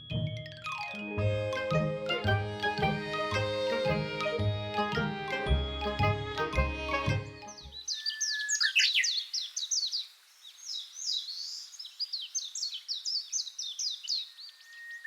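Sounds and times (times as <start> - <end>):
small birds chirping: 2.3 - 15.0.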